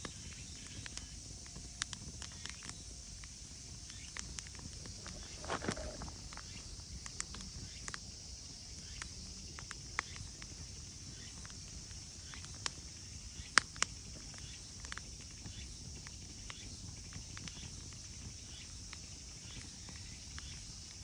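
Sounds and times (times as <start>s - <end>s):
sharp clicks and snaps: 0.0s - 8.0s, 8.8s - 10.5s, 13.4s - 15.1s
faint high-pitched chirring: 4.8s - 7.9s.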